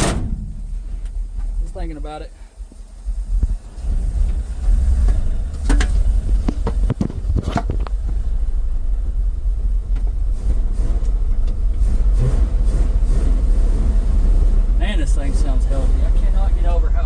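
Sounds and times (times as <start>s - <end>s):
truck engine rumbling: 0.0s - 17.0s
sharp clicks and knocks: 5.0s - 8.2s.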